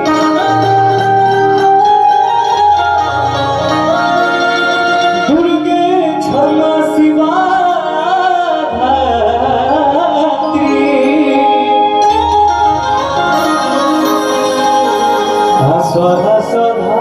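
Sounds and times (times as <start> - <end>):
electronic keyboard chords and bass: 0.0 - 17.0
man singing held wavering notes: 4.8 - 17.0.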